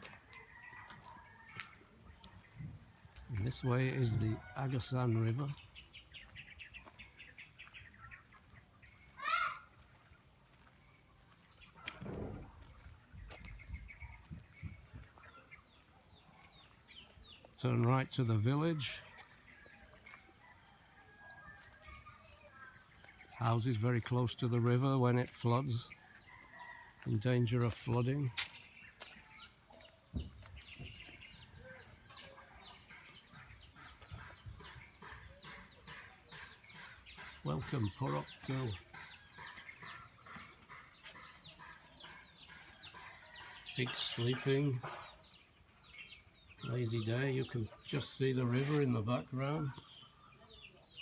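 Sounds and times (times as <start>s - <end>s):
low bump: 12.0s - 12.8s
low rumbles and thuds: 12.0s - 15.0s
chickens clucking: 24.6s - 50.9s.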